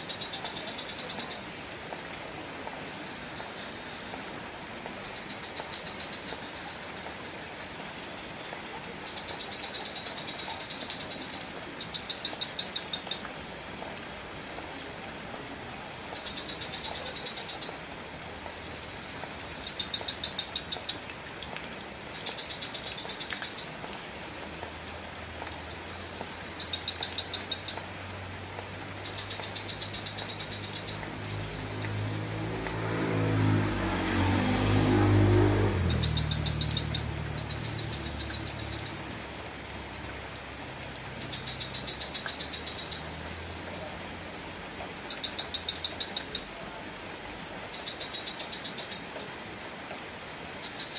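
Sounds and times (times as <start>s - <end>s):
steady rain falling: 0.0s - 50.9s
vehicle engine hum: 31.0s - 41.9s.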